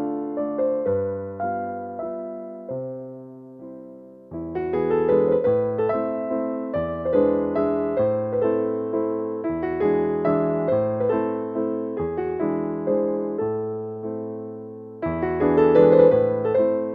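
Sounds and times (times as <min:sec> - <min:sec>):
piano music: 0:00.0 - 0:16.9.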